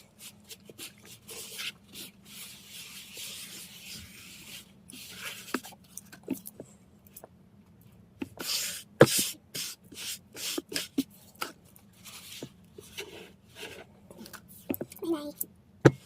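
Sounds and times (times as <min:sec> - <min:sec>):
rustling handling noises: 0:10.4 - 0:16.0.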